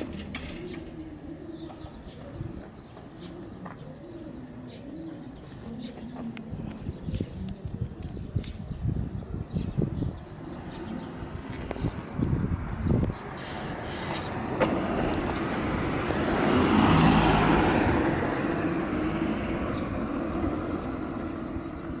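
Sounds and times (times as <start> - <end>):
vehicle passing by: 10.4 - 22.0.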